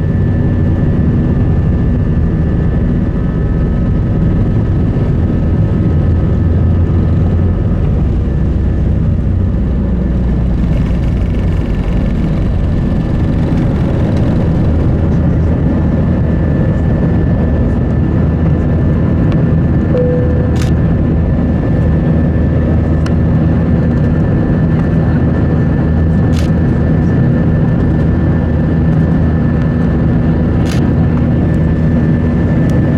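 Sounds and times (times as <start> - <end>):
airplane cabin engine rumble: 0.0 - 32.9
faint steady tones: 20.0 - 21.0.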